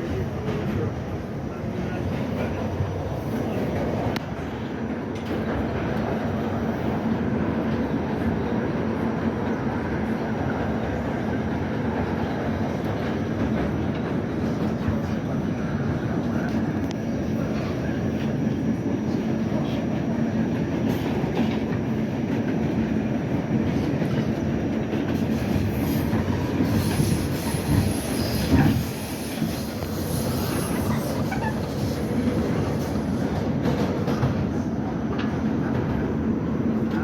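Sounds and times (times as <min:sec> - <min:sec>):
clickety-clack over rail joints: 0:00.0 - 0:37.0
subway train on rails: 0:00.0 - 0:37.0
high wheel squeal: 0:25.4 - 0:32.3.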